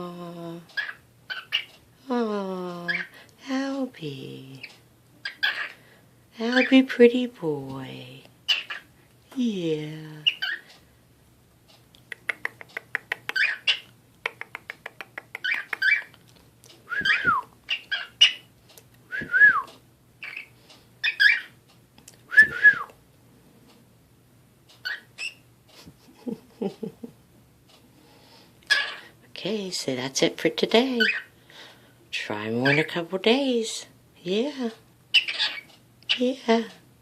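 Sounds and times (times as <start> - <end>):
cockatiel chattering: 0.8 - 1.7, 5.2 - 5.8, 8.5 - 8.9, 10.2 - 10.6, 12.2 - 16.1, 17.0 - 18.5, 20.2 - 21.6, 24.8 - 25.4, 28.7 - 29.1, 31.0 - 31.3, 35.1 - 36.2
cockatiel chirps: 5.2 - 5.8, 13.2 - 13.9, 15.4 - 16.1, 20.2 - 21.6, 24.8 - 25.4, 28.7 - 29.0, 35.1 - 36.2
cockatiel whistling: 16.9 - 18.4.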